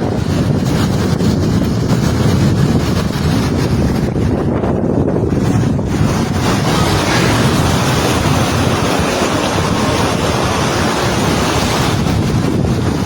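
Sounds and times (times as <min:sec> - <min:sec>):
heavy rain and running water: 0:06.1 - 0:13.0.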